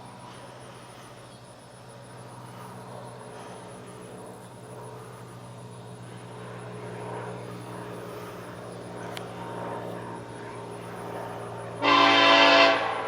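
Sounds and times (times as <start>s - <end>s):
train horn blast: 11.8s - 13.0s.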